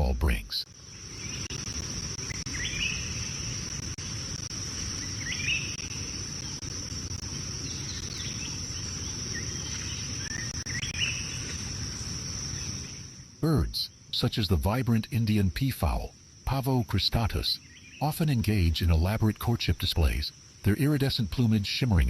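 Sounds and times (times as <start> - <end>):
high-pitched insect drone: 0.3 - 13.1.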